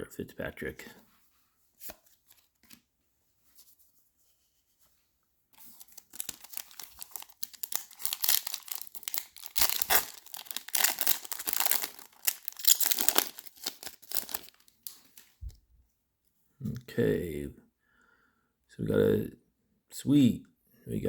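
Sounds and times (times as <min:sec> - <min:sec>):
wrapper crinkling: 0:05.6 - 0:15.4
foil pack tearing: 0:05.8 - 0:15.0.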